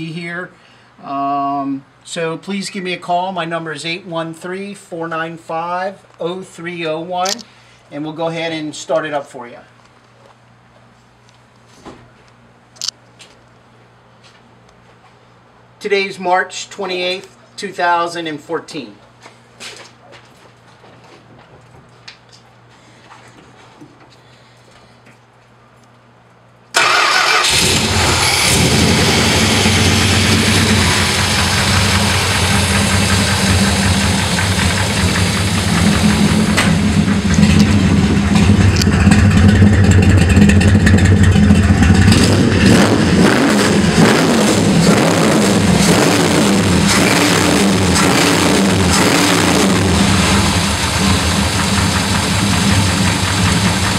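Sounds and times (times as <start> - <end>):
car engine starting and running: 26.8 - 53.9.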